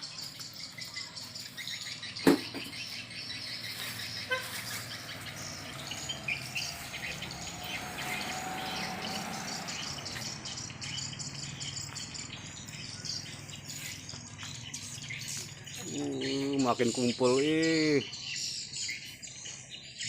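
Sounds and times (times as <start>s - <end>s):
sharp knock: 2.2s - 2.8s.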